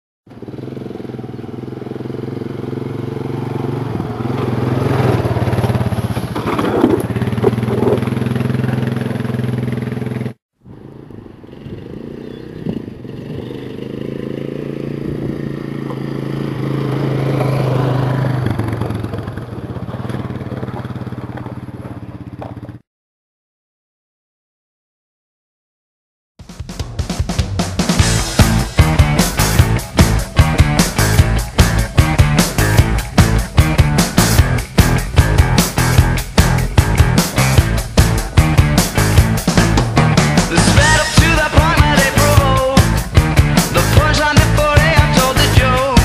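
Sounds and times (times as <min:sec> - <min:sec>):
quad bike engine under load: 0:00.3 - 0:22.8, 0:28.0 - 0:46.0
sharp knocks over bumps: 0:06.1 - 0:08.3.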